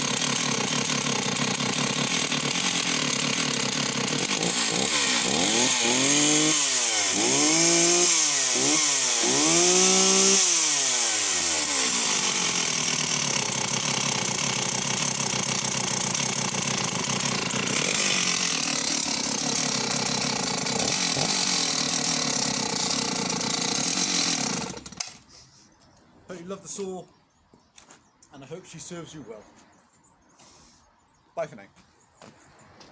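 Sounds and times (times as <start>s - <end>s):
chainsaw engine revving and idling: 0.0s - 25.3s.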